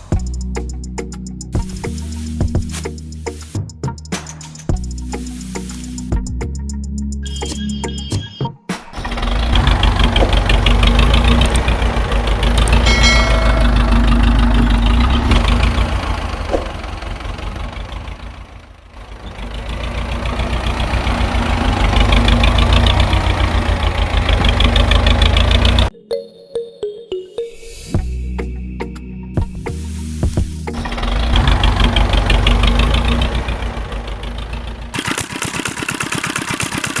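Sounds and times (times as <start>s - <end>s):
tractor engine running: 8.8s - 25.9s, 30.3s - 37.0s.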